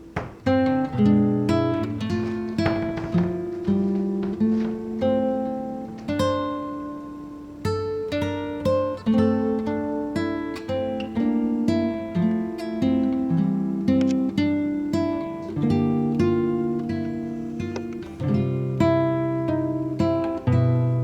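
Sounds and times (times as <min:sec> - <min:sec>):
acoustic guitar chords: 0:00.0 - 0:21.0.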